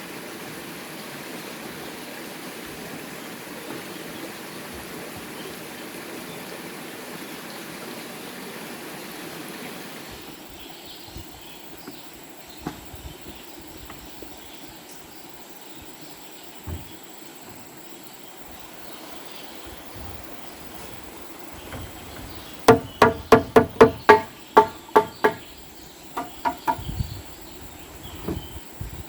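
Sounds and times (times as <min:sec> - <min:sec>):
running water rushing: 0:00.0 - 0:29.0
scattered knocks: 0:19.6 - 0:27.0.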